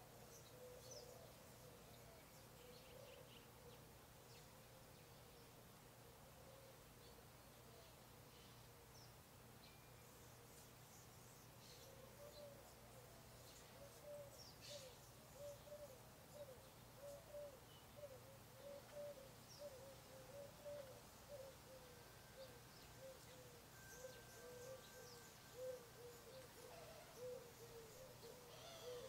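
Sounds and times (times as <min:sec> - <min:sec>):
low hooting bird calls: 0:11.6 - 0:29.0
faint high chirps: 0:13.6 - 0:29.0.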